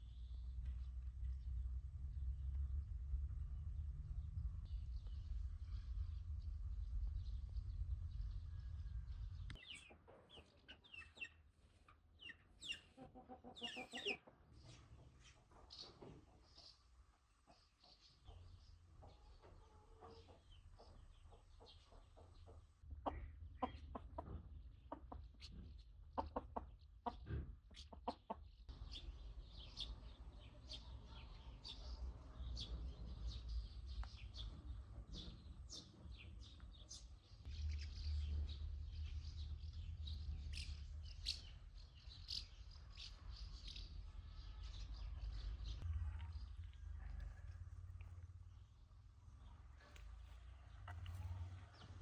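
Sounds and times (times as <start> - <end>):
low rumble: 0.1 - 9.6, 44.0 - 52.0
birds chirping: 4.1 - 52.0.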